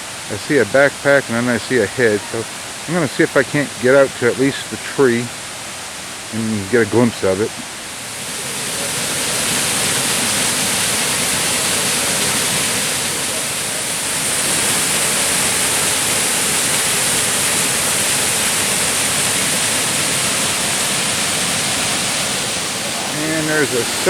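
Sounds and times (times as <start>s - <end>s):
small waterfall splashing over rock: 0.0s - 24.0s.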